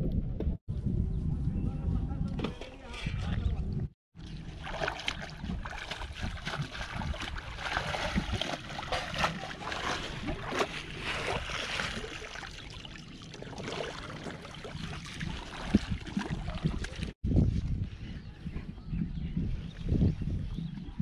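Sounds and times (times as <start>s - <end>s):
water sloshing and splashing: 4.2s - 17.2s.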